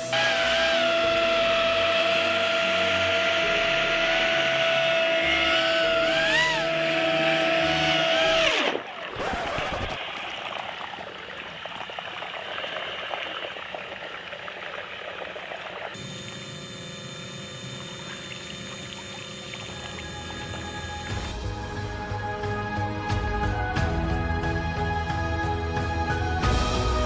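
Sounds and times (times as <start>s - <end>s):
ducted fan whining: 0.0s - 8.8s, 16.0s - 21.4s.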